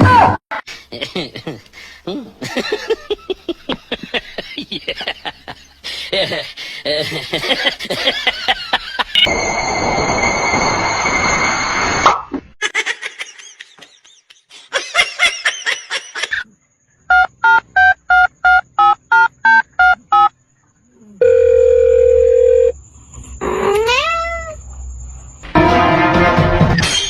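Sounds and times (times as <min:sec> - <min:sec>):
steady telephone tone: 0:21.2 - 0:22.8.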